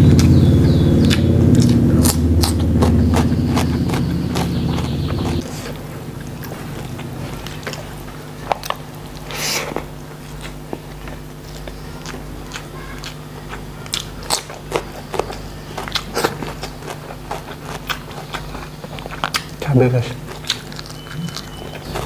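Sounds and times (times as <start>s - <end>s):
mouth clicks: 0.0s - 5.7s, 20.4s - 22.0s
steady low hum: 0.0s - 22.0s
sharp crunches: 1.0s - 5.8s
person chewing and biting: 1.0s - 22.0s.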